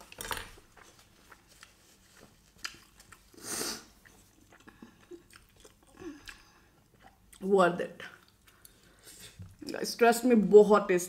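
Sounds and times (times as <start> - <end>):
chewing with wet mouth clicks: 2.6 - 3.3, 4.0 - 7.5, 8.1 - 8.8
breath hiss: 3.3 - 3.9.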